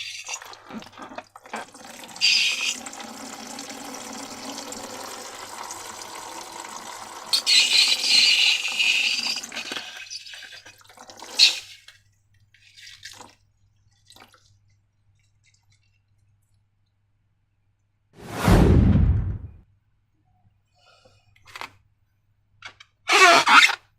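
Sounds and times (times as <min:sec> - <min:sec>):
water running and pouring: 0:00.0 - 0:12.0.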